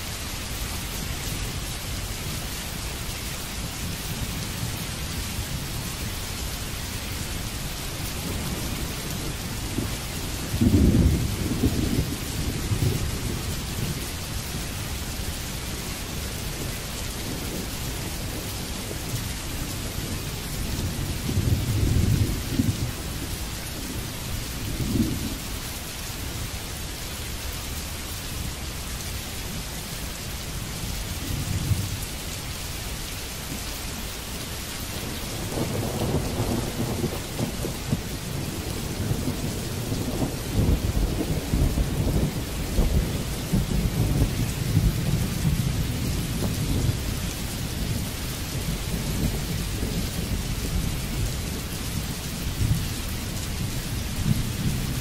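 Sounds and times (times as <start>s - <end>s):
steady rain: 0.0s - 55.0s
rolling thunder: 8.2s - 14.0s, 35.0s - 51.7s.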